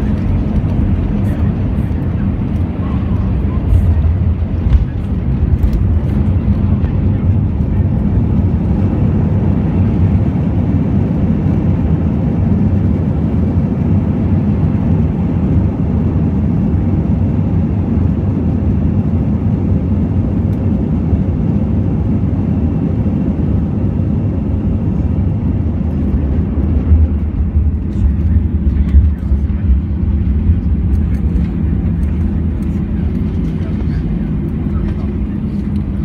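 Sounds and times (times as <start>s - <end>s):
airliner cabin engine rumble: 0.0s - 36.0s.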